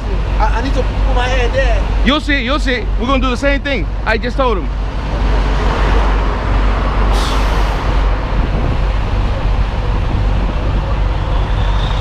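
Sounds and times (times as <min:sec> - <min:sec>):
diesel engine running: 0:00.0 - 0:12.0
air brake hiss: 0:07.1 - 0:08.0.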